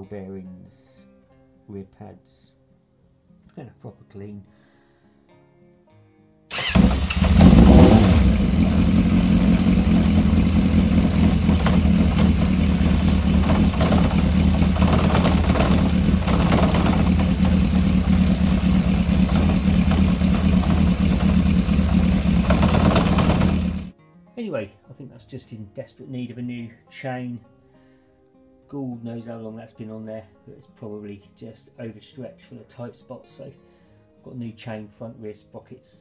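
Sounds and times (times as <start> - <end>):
motorcycle engine running: 6.5 - 23.9.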